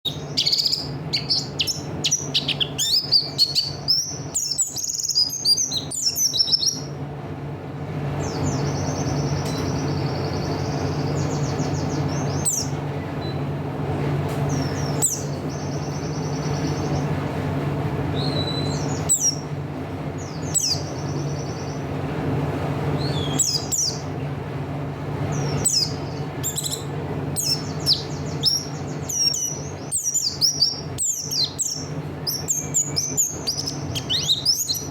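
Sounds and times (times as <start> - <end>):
bird twittering: 0.0 - 7.0, 8.2 - 13.4, 14.5 - 17.2, 18.1 - 19.5, 20.2 - 21.8, 23.0 - 24.1, 25.3 - 34.9
sharp bird chirps: 0.1 - 6.8, 25.4 - 34.9
bird rattling trills: 0.1 - 7.0, 25.2 - 34.9.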